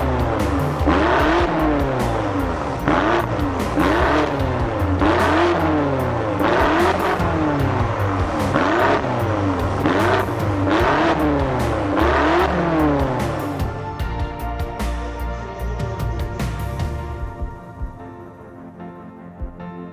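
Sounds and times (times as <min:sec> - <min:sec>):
car engine revving: 0:00.0 - 0:13.9
background music: 0:00.0 - 0:19.9.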